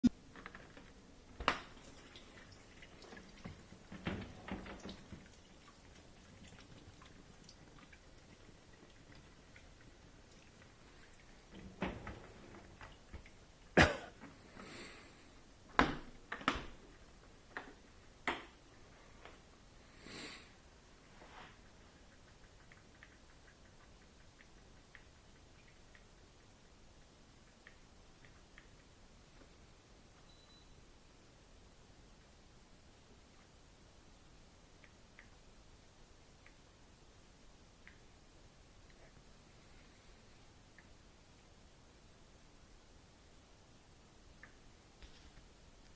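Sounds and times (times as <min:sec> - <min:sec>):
soft rustle: 0:18.7 - 0:22.1.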